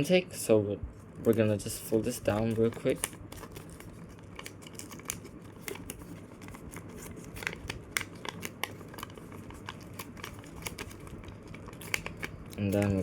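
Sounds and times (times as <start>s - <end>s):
paper being folded and creased: 1.2s - 13.0s.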